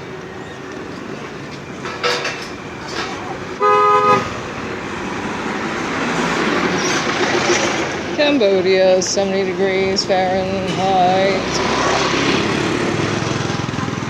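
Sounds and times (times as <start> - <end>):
street traffic noise: 0.0 - 14.0
vehicle horn honk: 3.6 - 4.4.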